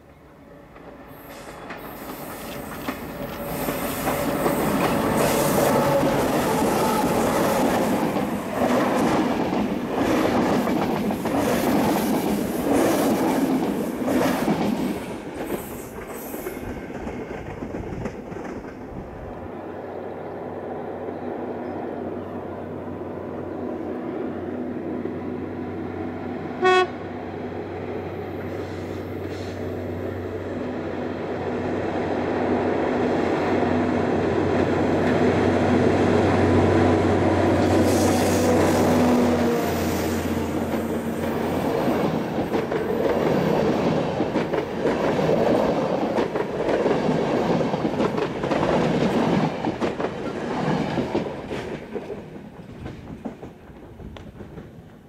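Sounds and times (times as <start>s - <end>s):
train wheels clattering on rails: 0.6s - 19.2s, 37.6s - 55.0s
train horn toot: 26.6s - 27.1s.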